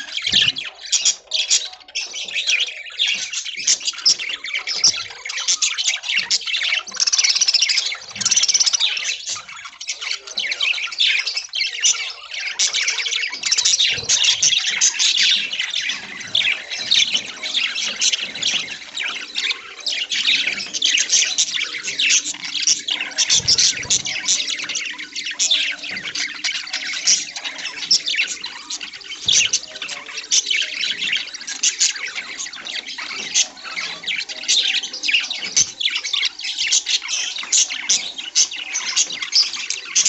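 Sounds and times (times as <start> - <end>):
budgerigars chirping and chattering: 0.0 - 40.0.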